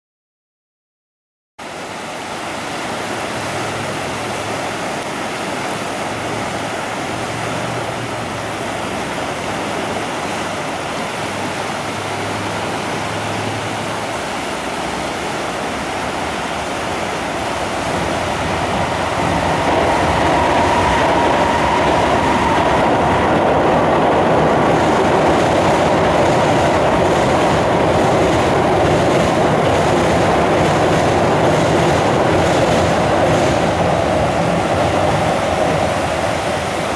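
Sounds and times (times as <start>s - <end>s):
river water rushing: 1.6s - 36.9s
train crossing steel bridge: 2.0s - 36.9s
steady whine: 15.2s - 36.9s.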